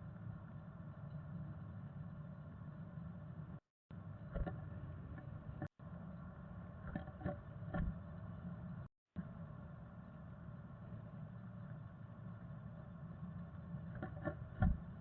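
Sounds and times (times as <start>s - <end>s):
low electrical hum: 0.0s - 15.0s
soft knocks and scratches: 4.3s - 5.7s, 6.8s - 8.0s, 13.9s - 15.0s.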